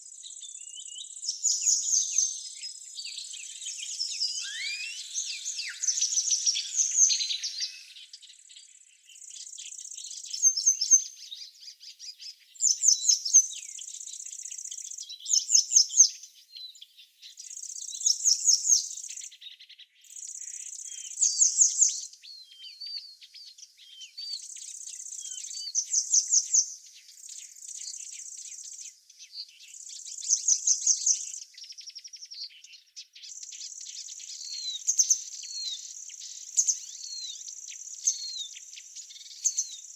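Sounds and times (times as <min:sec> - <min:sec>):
soft bird chirps: 0:00.0 - 0:39.9
songbird buzzy phrase: 0:04.3 - 0:08.0.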